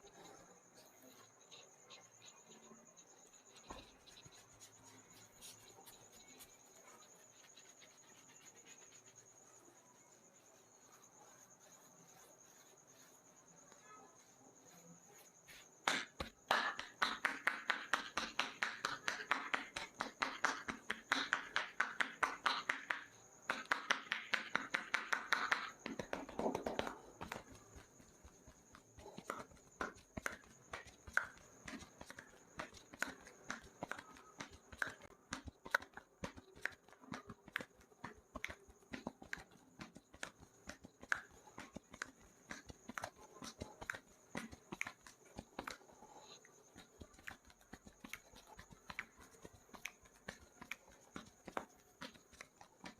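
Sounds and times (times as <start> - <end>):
crickets chirring: 0.0 - 52.9
rhythmic hand slaps: 15.5 - 52.9.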